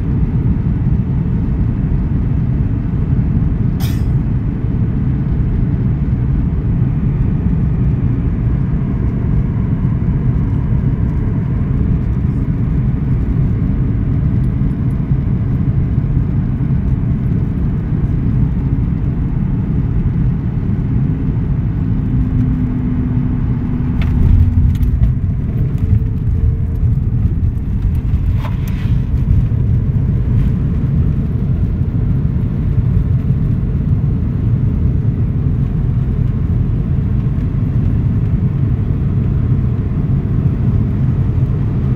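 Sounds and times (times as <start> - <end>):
airliner cabin rumble: 0.0 - 41.9.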